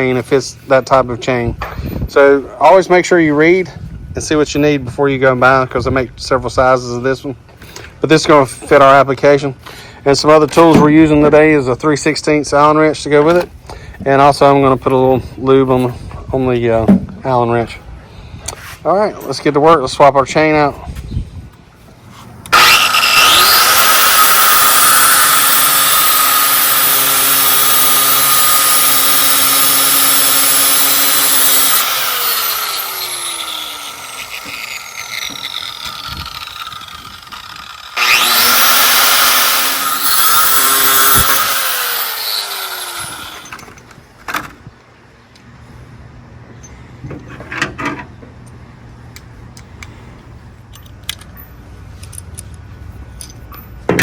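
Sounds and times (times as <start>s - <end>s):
power tool grinding: 22.4s - 43.7s.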